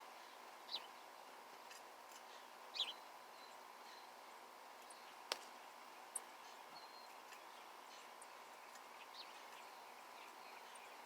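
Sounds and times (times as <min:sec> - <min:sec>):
faint steady hum: 0:00.0 - 0:11.0
small birds chirping: 0:00.0 - 0:11.0.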